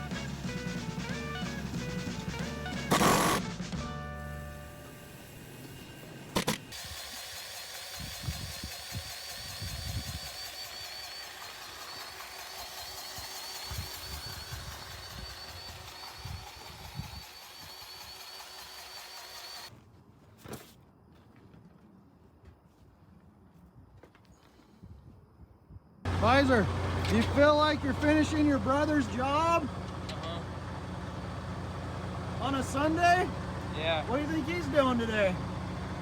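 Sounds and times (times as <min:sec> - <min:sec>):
machine noise with high whine: 0:02.9 - 0:03.5, 0:04.2 - 0:07.2, 0:08.0 - 0:19.7.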